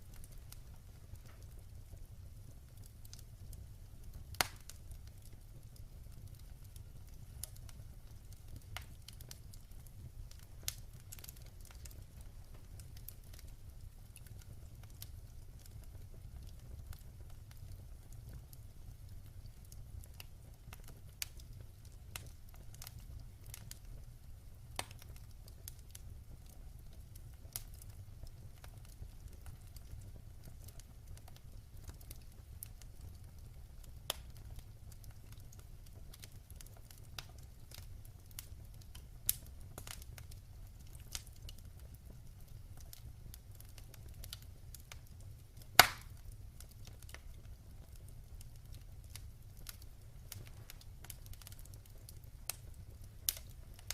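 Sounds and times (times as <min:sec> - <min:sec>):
wood fire crackling: 0:00.0 - 0:53.9
sharp pops of fire: 0:04.2 - 0:05.2, 0:34.1 - 0:34.6, 0:42.8 - 0:46.3, 0:48.4 - 0:53.9.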